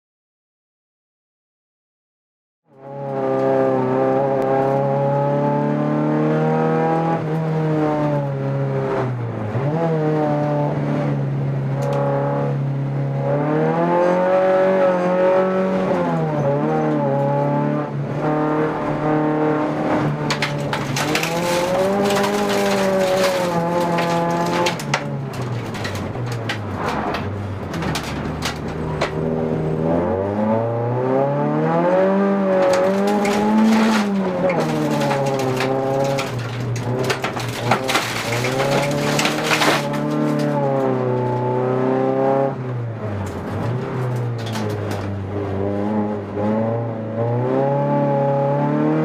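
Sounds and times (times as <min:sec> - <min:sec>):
racing car engine revving: 0:02.8 - 0:49.0
clattering knocks: 0:20.1 - 0:29.3, 0:32.4 - 0:40.7.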